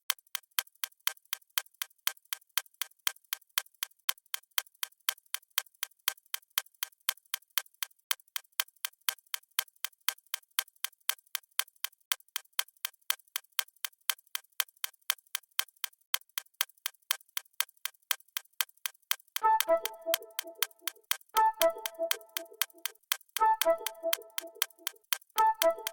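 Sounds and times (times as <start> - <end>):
countdown timer ticking: 19.4 - 25.9.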